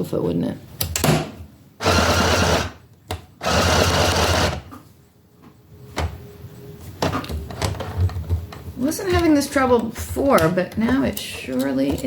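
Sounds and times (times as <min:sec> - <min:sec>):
sewing machine stitching: 0:01.8 - 0:02.7, 0:03.4 - 0:04.6.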